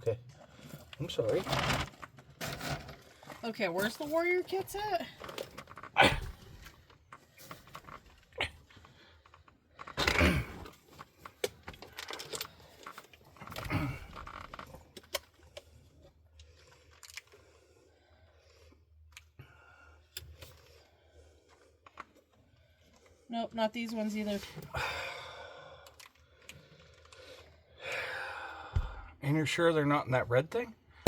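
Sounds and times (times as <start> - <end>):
scraping and rustling of tool kits: 0.0 - 17.4.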